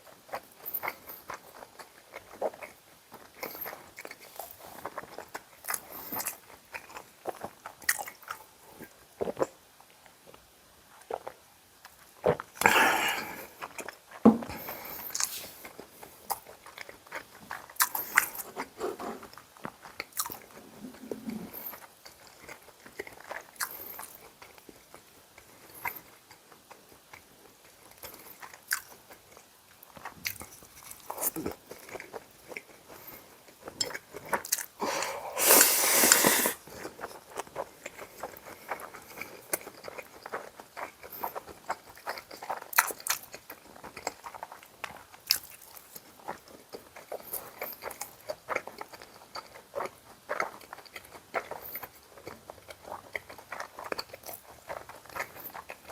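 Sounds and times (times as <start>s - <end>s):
person chewing food: 0.0s - 55.9s.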